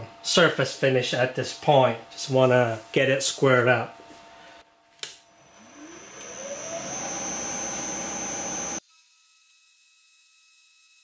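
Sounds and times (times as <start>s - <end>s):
faint steady hum: 3.8s - 8.8s
milling machine motor whine: 5.3s - 8.8s.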